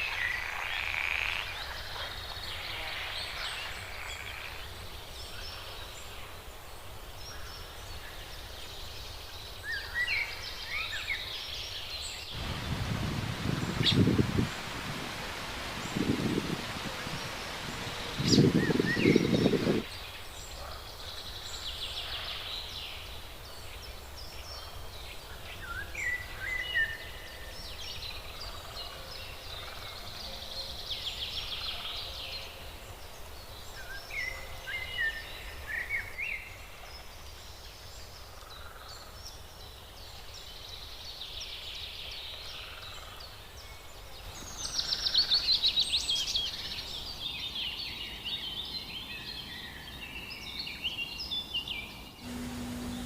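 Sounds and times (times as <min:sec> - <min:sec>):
birds trilling and whistling: 0:12.4 - 0:19.9
wind on microphone: 0:12.4 - 0:19.9, 0:52.2 - 0:53.0.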